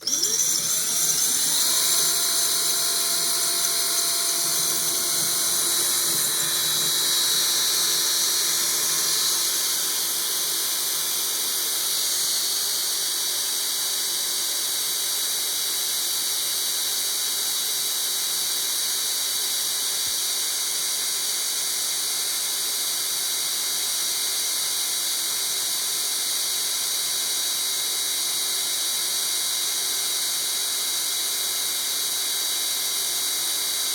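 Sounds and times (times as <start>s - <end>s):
electric drill grinding: 0.0s - 13.7s.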